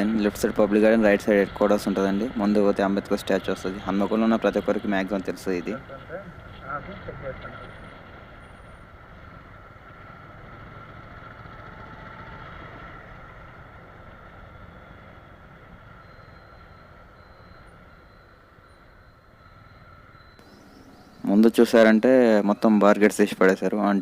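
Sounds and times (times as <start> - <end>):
road noise: 0.0 - 24.0
motorcycle engine running: 7.6 - 16.6.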